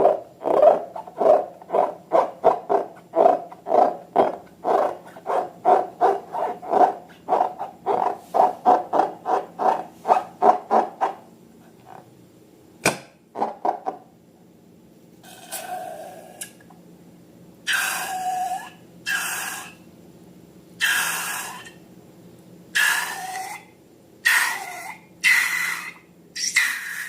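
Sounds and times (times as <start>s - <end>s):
sharp snap: 12.8s - 13.2s.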